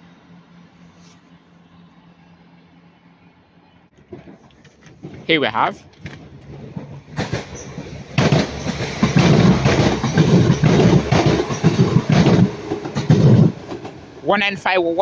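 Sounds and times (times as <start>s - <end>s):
train wheels clattering over rail joints: 4.0s - 14.3s.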